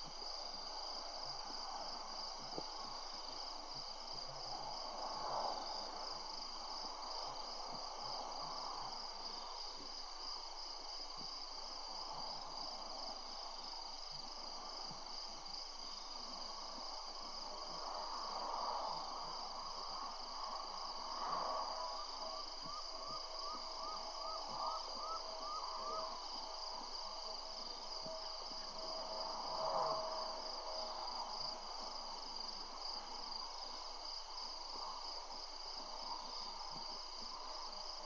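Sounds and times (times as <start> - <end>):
high-pitched insect trill: 17.6 - 38.0.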